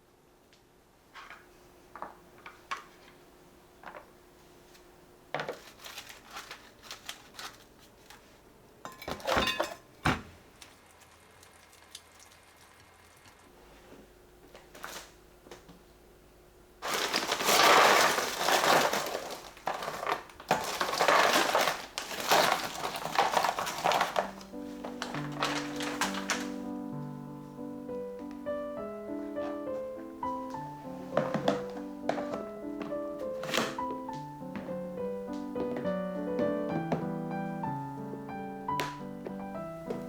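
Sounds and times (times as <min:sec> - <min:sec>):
plastic bag crumpling: 0:05.5 - 0:08.4, 0:16.8 - 0:26.8
frozen shrimp rattling: 0:16.8 - 0:26.7.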